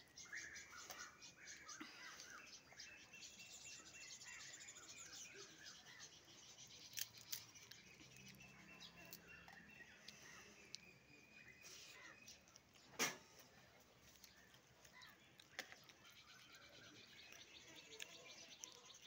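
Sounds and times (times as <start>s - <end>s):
faint bird chirping: 0.0s - 19.0s.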